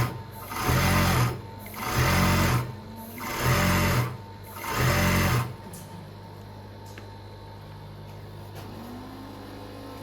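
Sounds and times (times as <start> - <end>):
sewing machine running: 0.0 - 5.7.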